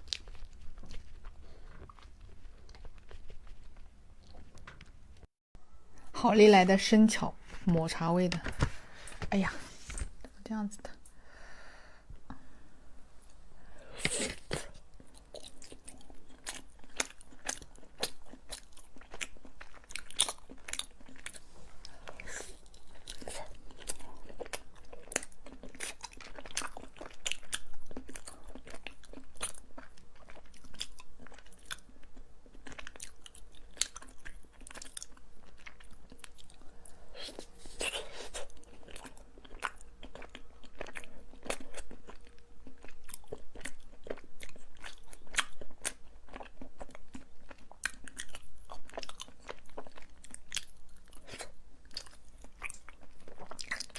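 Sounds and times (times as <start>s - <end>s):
person biting and chewing: 14.0s - 21.4s.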